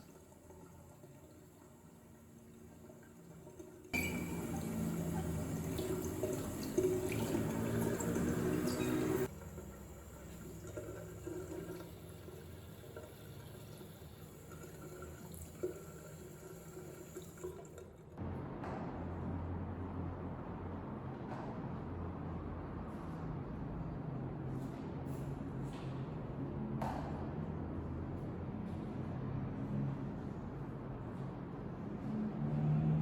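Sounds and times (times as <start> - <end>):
tap water running into sink: 0.0 - 17.9.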